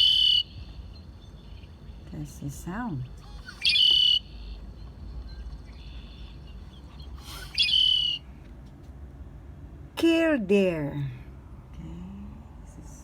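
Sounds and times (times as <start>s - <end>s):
blackbird song with buzzy trill: 0.0s - 2.2s, 3.2s - 8.3s.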